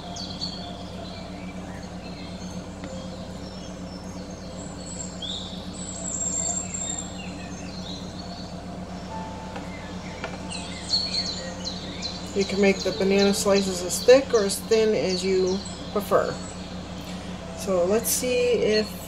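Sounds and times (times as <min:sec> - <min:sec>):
birds chirping and whistling: 0:00.0 - 0:19.0
low electrical hum: 0:00.0 - 0:19.0.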